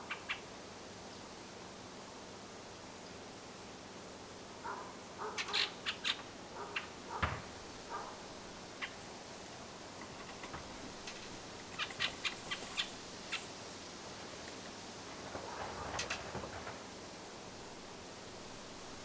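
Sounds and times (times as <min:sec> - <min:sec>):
low thump: 0:07.1 - 0:08.0.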